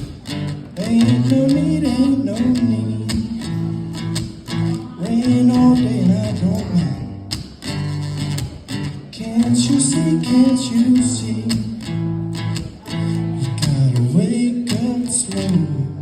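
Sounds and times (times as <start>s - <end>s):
acoustic guitar strumming: 0.0s - 16.0s
person singing wordlessly: 0.7s - 3.6s, 4.6s - 7.1s, 9.0s - 11.9s, 12.6s - 16.0s.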